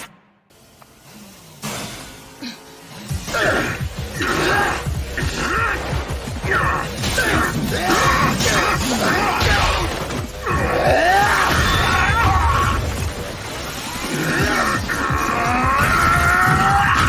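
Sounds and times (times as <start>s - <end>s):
dramatic music score: 0.0s - 17.0s.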